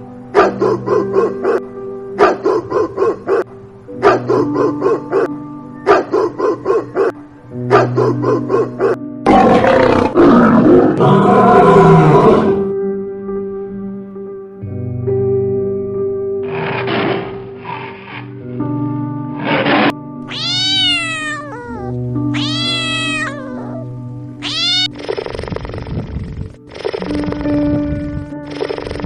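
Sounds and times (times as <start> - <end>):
background music pulsed notes: 0.0 - 29.0
animal roar: 9.3 - 12.7, 16.4 - 18.3, 19.4 - 25.5.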